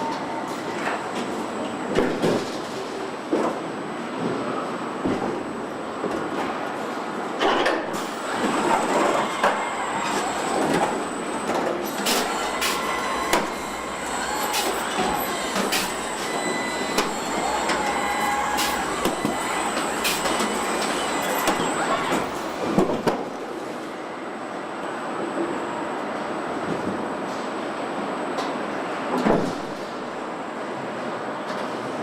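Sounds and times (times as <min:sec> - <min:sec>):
short whirring whines: 0:08.0 - 0:22.8
steady industrial din: 0:08.1 - 0:22.8.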